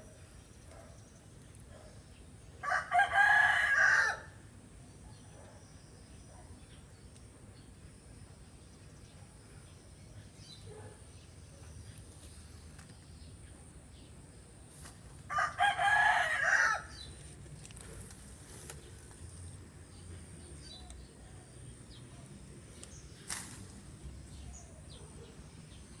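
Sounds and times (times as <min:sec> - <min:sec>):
faint outdoor background: 0:00.0 - 0:26.0
rooster crowing: 0:02.6 - 0:04.4, 0:15.3 - 0:17.0.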